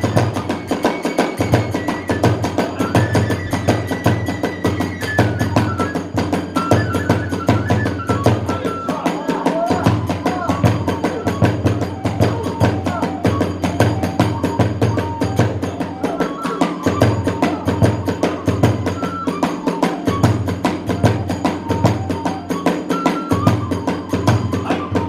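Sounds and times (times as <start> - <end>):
bamboo flute melody: 0.0 - 25.0
taiko drums: 0.0 - 25.0.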